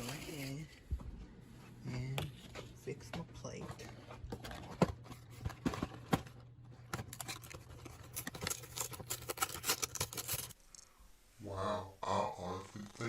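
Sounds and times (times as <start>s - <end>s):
food packaging rustling: 3.8s - 10.8s.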